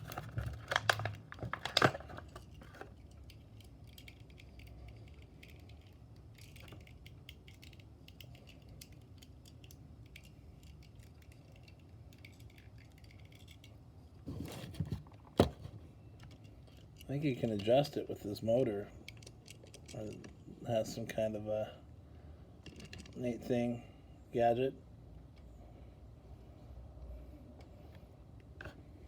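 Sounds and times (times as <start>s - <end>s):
toy car clicks and knocks: 0.0s - 13.8s
low steady hum: 0.0s - 29.0s.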